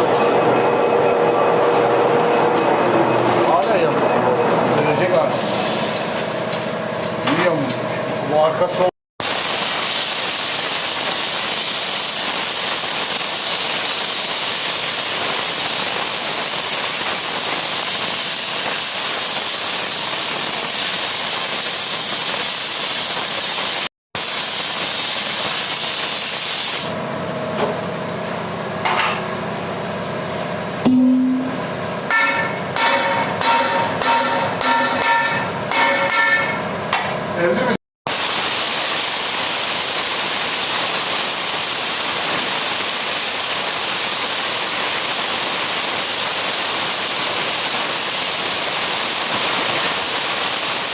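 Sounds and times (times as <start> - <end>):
short hum: 30.8 - 32.6.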